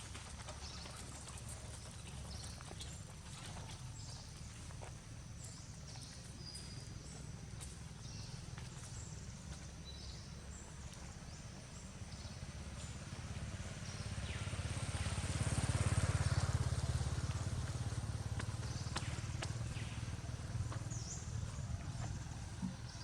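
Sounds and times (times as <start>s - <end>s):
vehicle passing: 11.2s - 23.0s.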